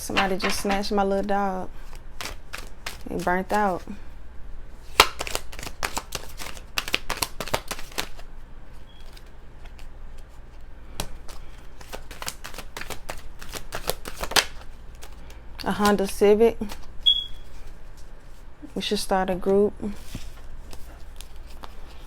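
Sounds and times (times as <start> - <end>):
cards being shuffled: 1.8 - 3.8, 4.9 - 8.2, 11.0 - 16.9, 20.0 - 22.0
loud card snap: 5.0 - 8.1.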